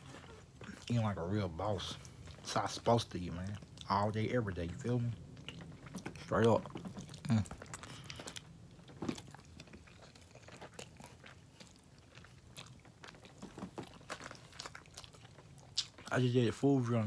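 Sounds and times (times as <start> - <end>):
person chewing crunchy food: 0.0 - 16.3
wet mouth noises: 5.4 - 8.5.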